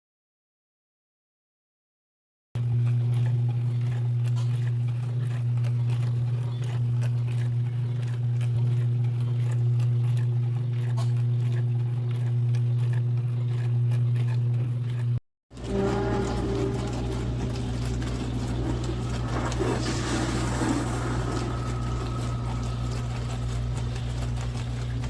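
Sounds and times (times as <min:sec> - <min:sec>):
dishwasher pump hum: 0:14.4 - 0:25.0
faint ticking and spatter: 0:14.9 - 0:25.0.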